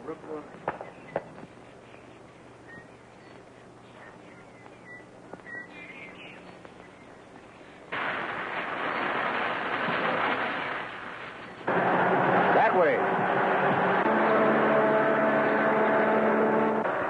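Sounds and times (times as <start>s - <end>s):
film hiss: 0.0s - 14.0s
rumble of rock: 7.9s - 14.0s
dynamite blast: 7.9s - 15.1s.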